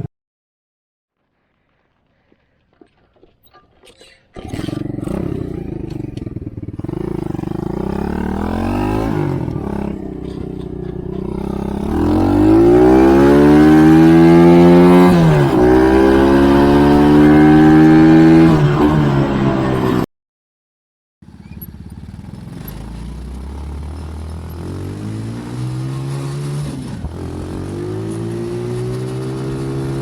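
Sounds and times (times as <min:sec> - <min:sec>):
motorbike engine revving: 0:04.4 - 0:20.1, 0:21.3 - 0:30.0.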